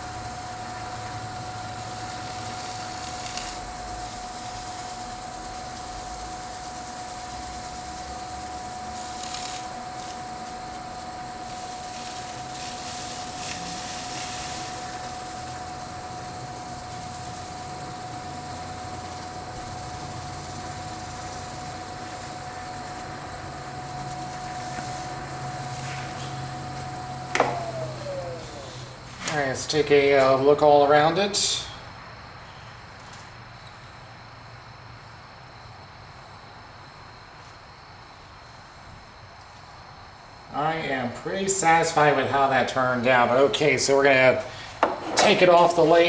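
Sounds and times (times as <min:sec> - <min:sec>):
cloth buffing spinning bowl: 0:00.0 - 0:30.8, 0:41.6 - 0:46.0
wood lathe motor whine: 0:00.0 - 0:31.8, 0:40.5 - 0:46.0.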